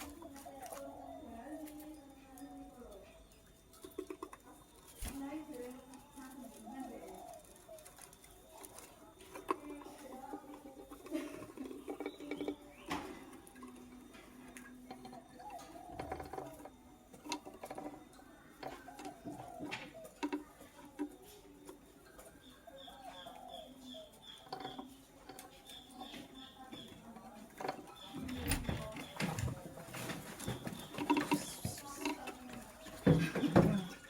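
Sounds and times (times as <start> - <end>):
lovebird chirping: 22.0 - 34.0.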